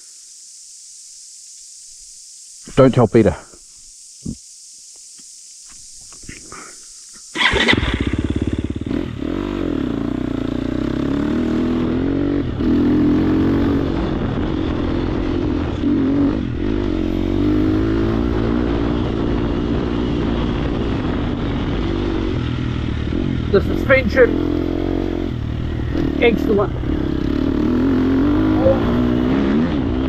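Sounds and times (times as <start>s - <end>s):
motorcycle engine under load: 7.4s - 10.3s.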